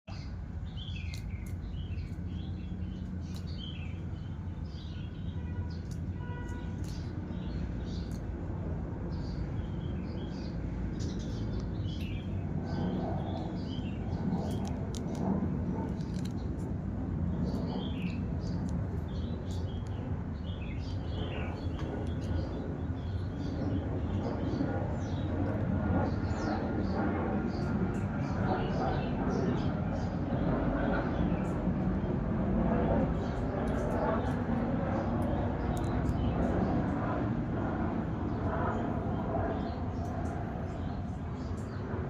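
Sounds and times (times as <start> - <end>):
bird chirping: 0.1 - 8.3, 9.1 - 16.7, 17.3 - 31.6
steady low hum: 0.1 - 42.0.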